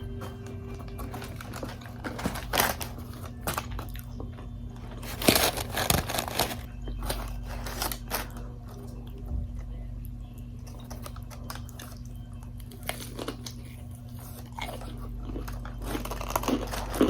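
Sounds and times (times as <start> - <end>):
faint electrical hum: 0.0 - 17.0
crunchy bites and chewing: 10.6 - 17.0.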